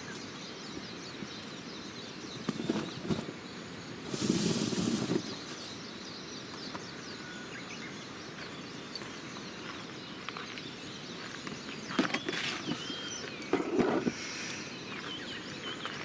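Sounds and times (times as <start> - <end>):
small birds chirping: 0.0 - 16.0
steady hiss: 1.5 - 7.2, 12.5 - 16.0.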